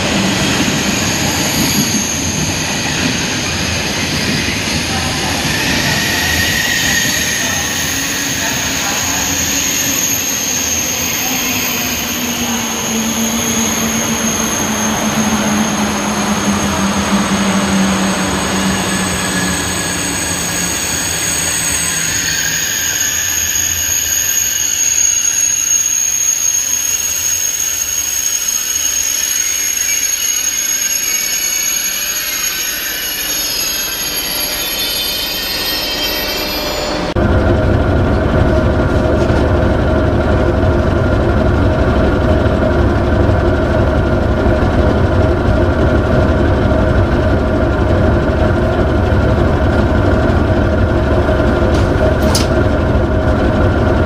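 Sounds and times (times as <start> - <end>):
high-pitched whine: 0.0 - 41.3
train rumbling by: 0.0 - 54.0.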